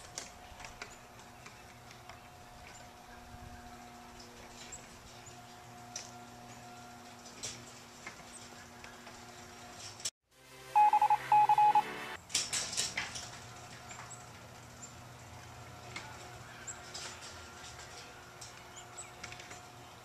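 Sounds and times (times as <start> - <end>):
loud electronic beeps: 10.8 - 11.9.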